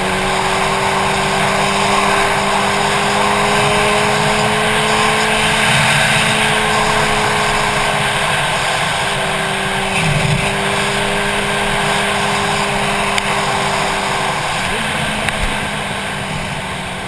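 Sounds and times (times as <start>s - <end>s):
motorcycle engine running: 0.0s - 17.0s
wind rush: 0.0s - 17.0s.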